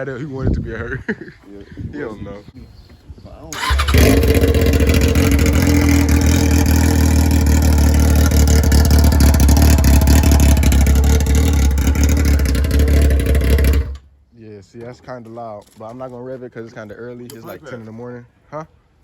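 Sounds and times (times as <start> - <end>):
motorcycle engine idling loudly: 3.6 - 14.0.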